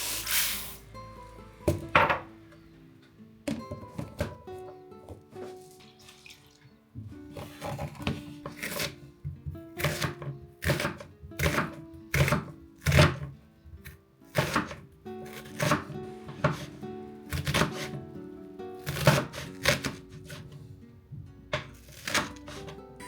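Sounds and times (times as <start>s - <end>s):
soft background music: 0.0s - 23.0s
knife chopping on cutting board: 7.3s - 13.4s, 14.3s - 18.0s, 18.8s - 20.6s, 21.6s - 22.8s.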